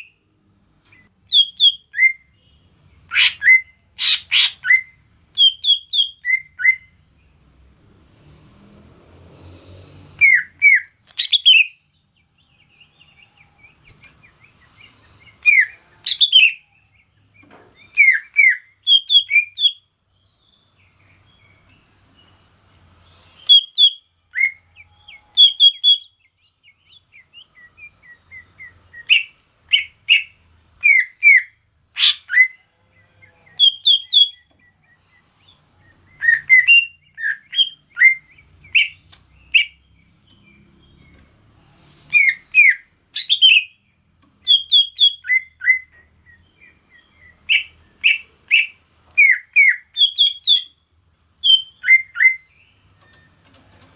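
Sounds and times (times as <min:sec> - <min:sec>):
bird singing whistled notes: 0:00.9 - 0:07.0, 0:10.1 - 0:22.4, 0:23.0 - 0:41.2, 0:42.1 - 0:43.8, 0:44.4 - 0:50.8, 0:51.4 - 0:53.4.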